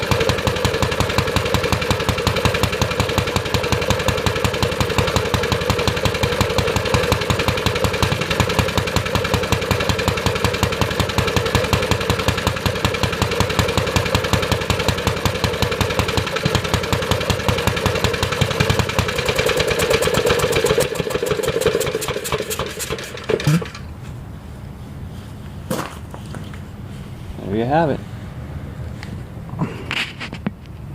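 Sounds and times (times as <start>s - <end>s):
single-cylinder engine running: 0.0s - 23.9s.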